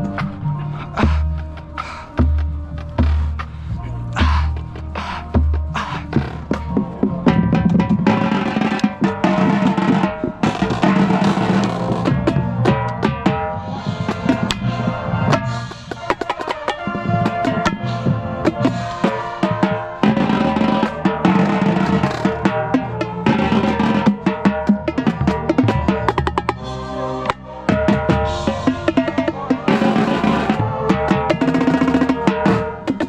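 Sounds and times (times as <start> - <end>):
band playing a song: 0.0 - 33.0.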